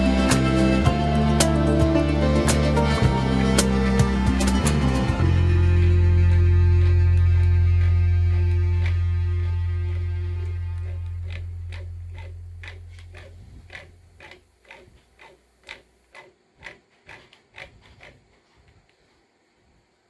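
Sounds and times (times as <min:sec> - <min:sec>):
background music: 0:00.0 - 0:12.3
regular ticking: 0:08.5 - 0:18.2.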